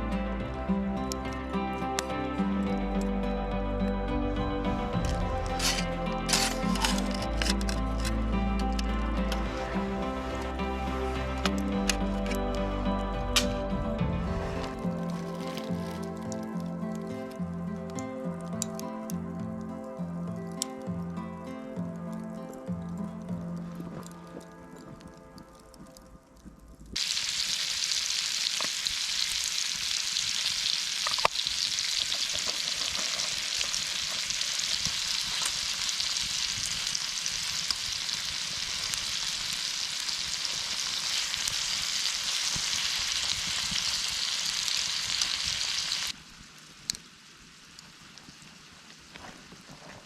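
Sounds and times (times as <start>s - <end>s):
food sizzling: 4.7s - 19.4s, 27.0s - 50.0s
small pops of frying: 26.9s - 49.8s.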